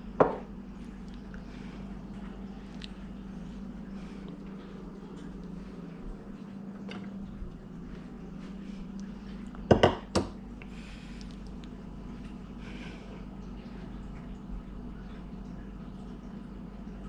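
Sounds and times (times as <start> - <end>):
steady low hum: 0.0 - 17.0
dishes clattering: 9.7 - 10.3.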